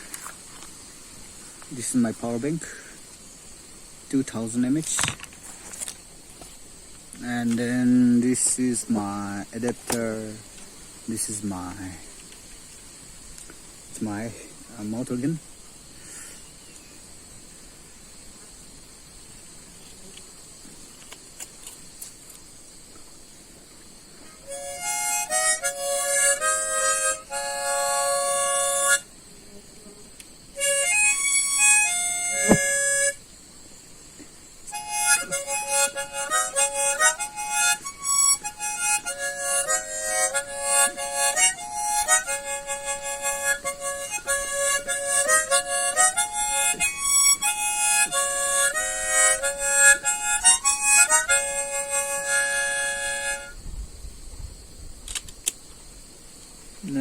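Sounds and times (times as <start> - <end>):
harmonica melody in chords: 24.4 - 29.1, 30.6 - 33.2, 34.7 - 53.6.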